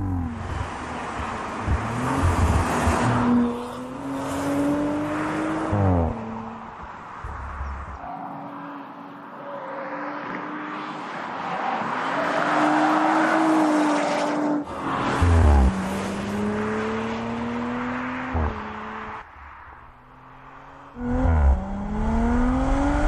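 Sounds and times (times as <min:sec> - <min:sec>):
car engine accelerating: 0:00.0 - 0:06.7, 0:14.8 - 0:23.0.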